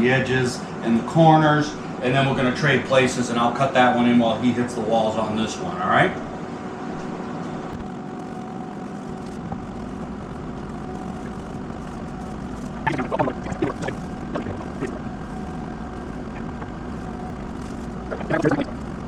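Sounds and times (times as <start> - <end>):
mechanical hum: 0.0 - 19.0
faint steady tones: 10.7 - 19.0.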